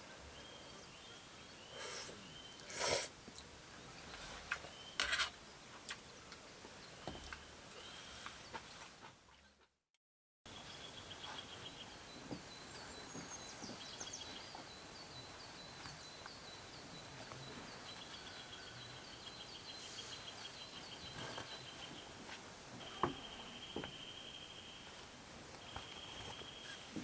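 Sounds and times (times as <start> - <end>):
steady hiss: 1.7 - 3.2.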